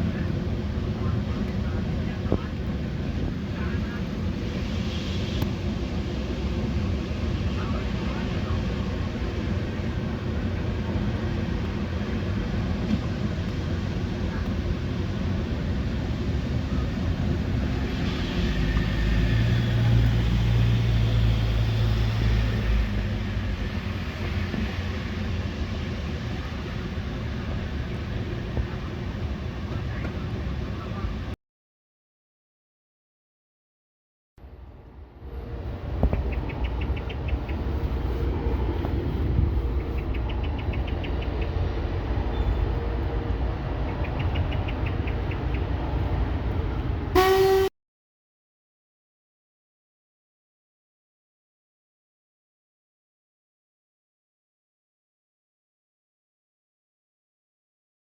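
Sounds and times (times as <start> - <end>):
railway locomotive rumbling: 0.0 - 31.4, 34.4 - 47.7
locomotive horn blast: 17.8 - 19.8, 47.1 - 47.7.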